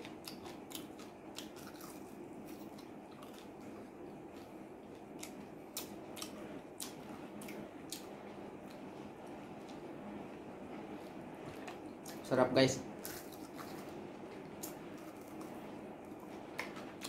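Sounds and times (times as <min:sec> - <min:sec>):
person chewing chicken: 0:00.0 - 0:08.1
low steady background noise: 0:00.0 - 0:17.0.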